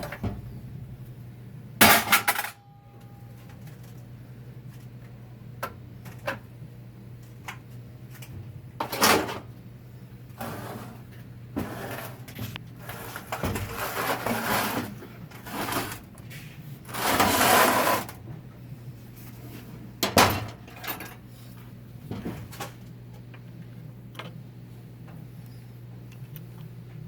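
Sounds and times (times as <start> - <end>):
steady low hum: 0.0 - 27.0
hand tools scraping and rattling: 11.6 - 18.2.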